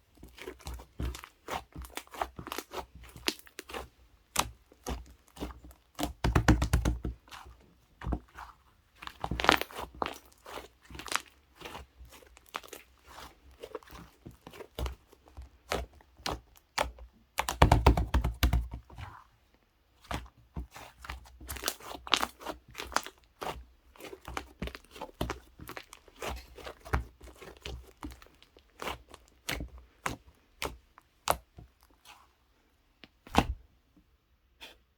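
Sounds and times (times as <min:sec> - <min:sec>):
slime squish: 0:00.0 - 0:33.6.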